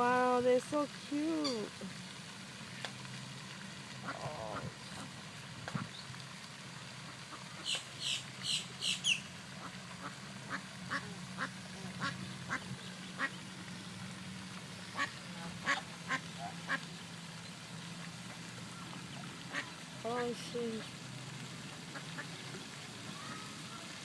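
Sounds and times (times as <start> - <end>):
ducks quacking: 7.0 - 13.4, 14.9 - 16.9, 19.5 - 20.9.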